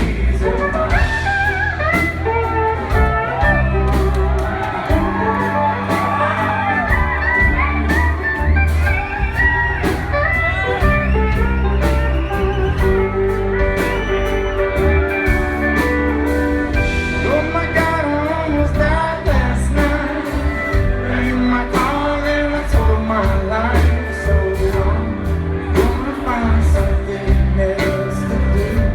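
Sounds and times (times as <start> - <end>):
live rock band playing: 0.0 - 28.9
person singing: 17.0 - 28.9.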